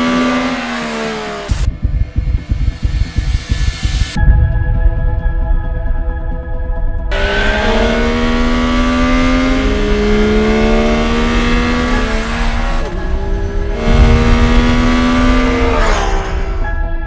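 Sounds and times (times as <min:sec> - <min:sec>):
motorcycle engine revving hard: 0:00.0 - 0:01.7, 0:07.1 - 0:16.8.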